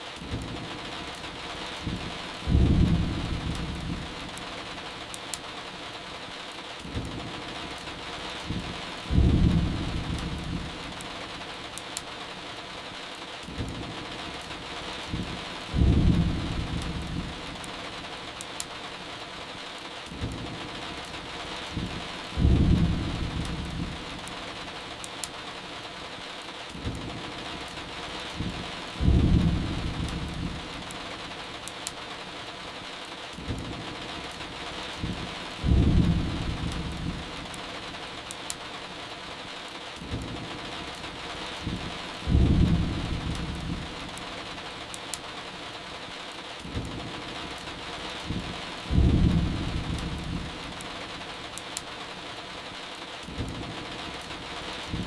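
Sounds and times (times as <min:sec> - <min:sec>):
rain hiss: 0:00.0 - 0:55.0
firewood crackling: 0:00.1 - 0:55.0
distant thunder rumbling: 0:01.8 - 0:04.3, 0:08.4 - 0:10.9, 0:14.8 - 0:17.6, 0:21.6 - 0:24.2, 0:28.2 - 0:30.8, 0:35.0 - 0:37.5, 0:41.4 - 0:44.1, 0:48.0 - 0:50.8.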